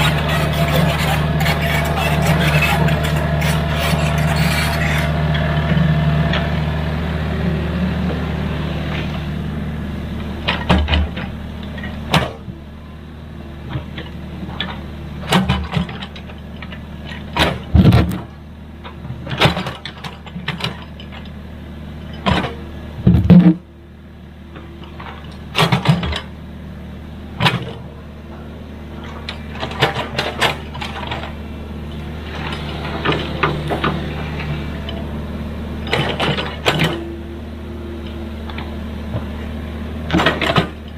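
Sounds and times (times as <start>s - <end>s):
diesel engine running: 0.0s - 40.9s
metal clanks and knocks: 22.2s - 23.6s.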